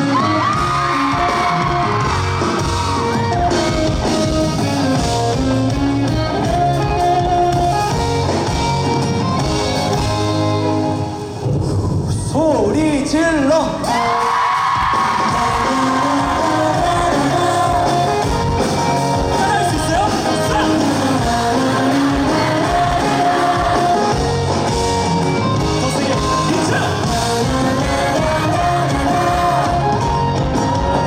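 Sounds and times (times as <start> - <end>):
audience shouting: 0.0 - 3.4, 13.8 - 17.9
live band music: 0.0 - 12.4, 13.4 - 31.0
person singing: 15.0 - 24.6, 25.7 - 31.0.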